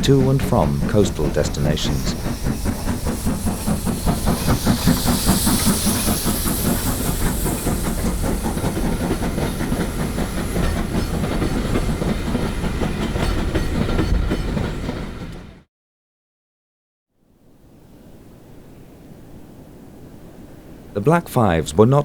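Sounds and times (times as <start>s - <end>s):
steam hiss: 0.0s - 14.6s
steam locomotive exhaust beats: 0.0s - 15.6s
train clatter on rails: 0.0s - 15.7s.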